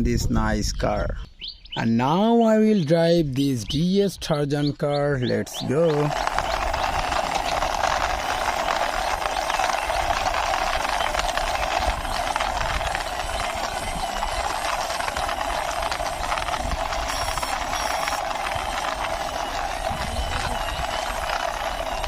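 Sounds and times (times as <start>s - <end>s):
toy car wheels rolling: 5.2s - 22.0s.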